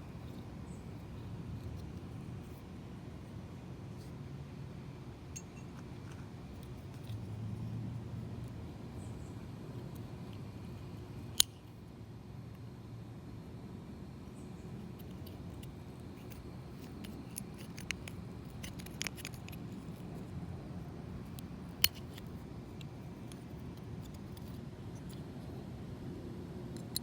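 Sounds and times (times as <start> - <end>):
metal tool clicking and scraping: 5.4 - 7.3, 15.0 - 20.3, 21.2 - 25.2.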